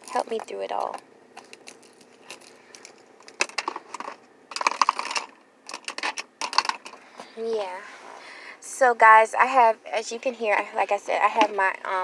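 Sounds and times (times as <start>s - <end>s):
small hard objects clicking and rattling: 0.0s - 7.0s.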